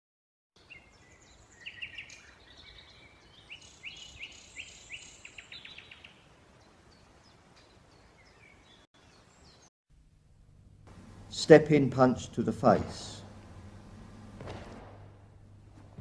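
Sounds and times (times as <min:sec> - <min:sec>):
birds chirping and singing: 0:00.6 - 0:09.7
faint steady hiss: 0:03.2 - 0:16.0.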